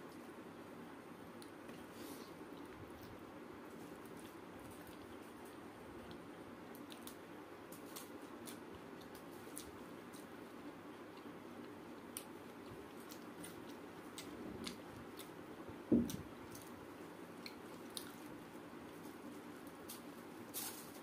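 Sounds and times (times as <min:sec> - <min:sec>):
person chewing: 0:10.9 - 0:15.4.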